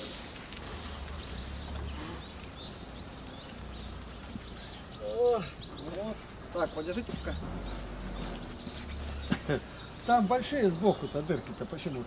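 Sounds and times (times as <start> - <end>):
loud bird call: 0.0 - 3.2
small birds chirping: 0.0 - 12.0.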